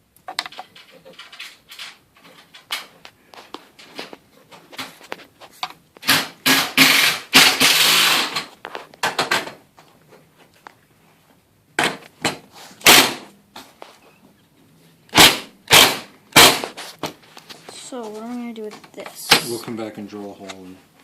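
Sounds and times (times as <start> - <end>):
short rattling burst: 6.0 - 8.5, 15.1 - 16.8
knocks and clanks on garage door hardware: 6.0 - 9.6.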